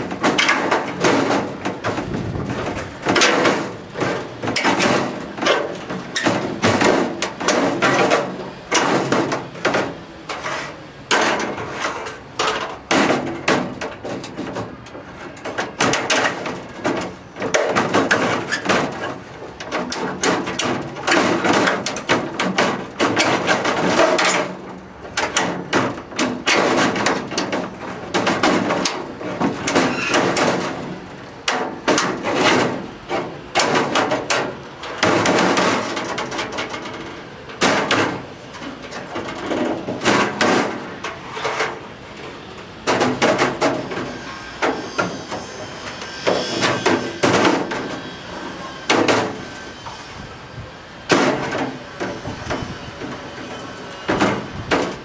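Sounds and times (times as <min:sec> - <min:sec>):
hammer blows on sheet metal: 0:39.2 - 0:55.0.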